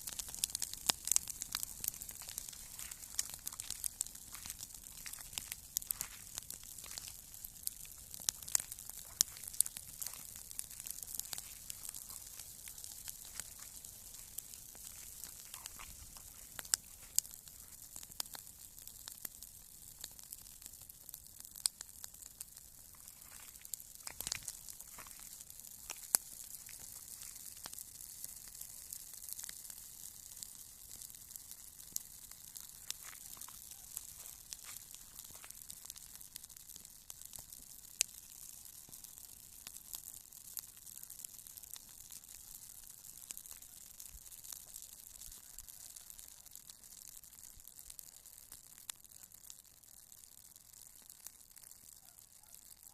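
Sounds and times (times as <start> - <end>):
campfire crackling and popping: 0.0 - 52.9.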